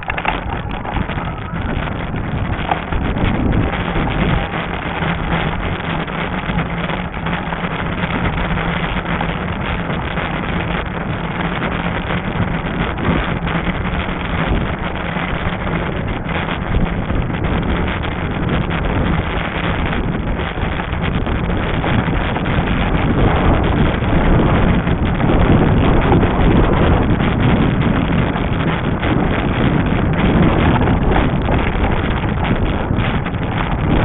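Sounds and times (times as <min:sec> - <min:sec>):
steady low hum: 0:00.0 - 0:34.0
wind buffeting microphone: 0:00.0 - 0:34.0.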